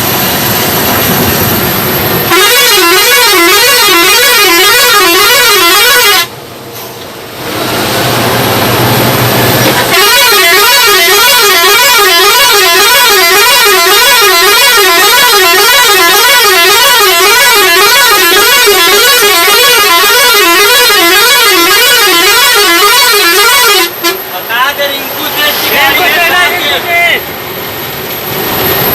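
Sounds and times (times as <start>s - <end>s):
warbling truck horn: 2.2s - 6.4s, 9.7s - 24.3s.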